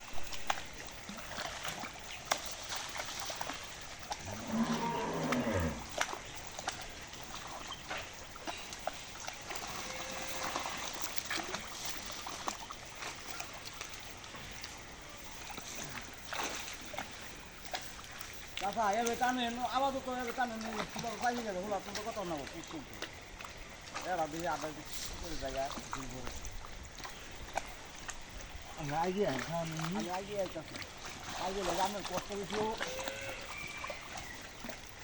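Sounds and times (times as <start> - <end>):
cow mooing: 4.2 - 6.0, 32.8 - 33.8.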